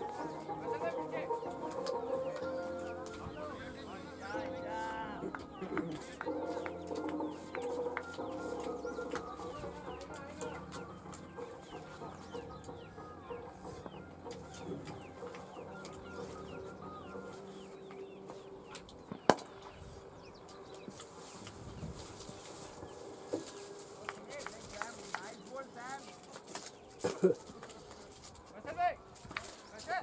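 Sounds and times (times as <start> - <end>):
birds chirping: 0.0 - 30.0
sharp crack: 18.7 - 19.7.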